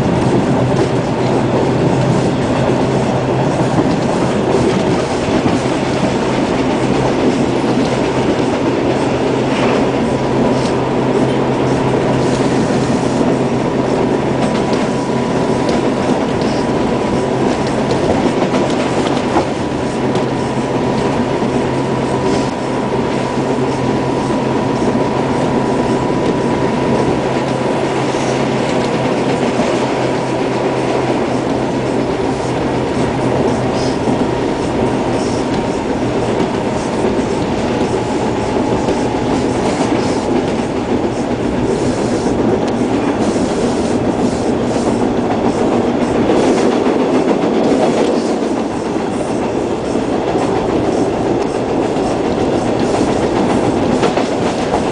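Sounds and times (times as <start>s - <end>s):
subway car rumble: 0.0s - 54.9s
wheel clatter on rails: 12.1s - 54.9s.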